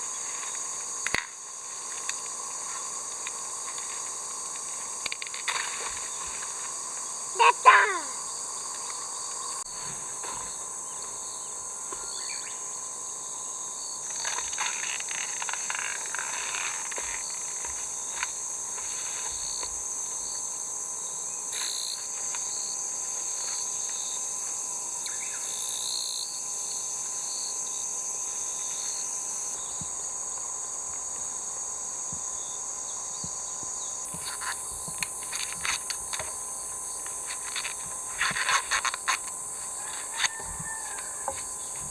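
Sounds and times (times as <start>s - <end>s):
insects buzzing and shrilling: 0.0s - 41.9s
rustles and clicks: 0.1s - 6.8s, 14.0s - 19.8s, 34.1s - 41.9s.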